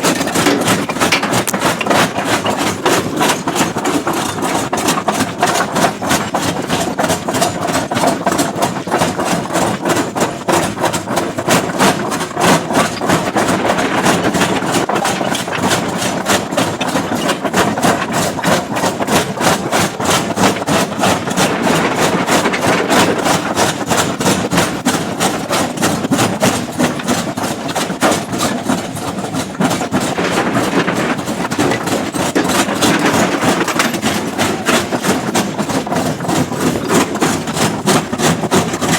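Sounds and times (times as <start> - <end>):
rock breaker impacts: 0.0 - 4.5, 12.4 - 18.1, 21.1 - 24.3, 29.8 - 37.7.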